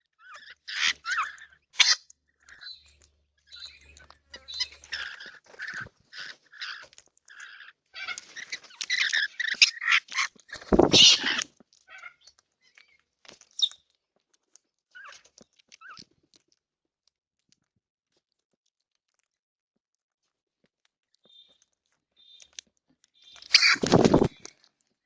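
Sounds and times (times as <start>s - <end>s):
birds chattering: 0.2s - 13.8s, 22.2s - 22.6s, 23.2s - 24.6s.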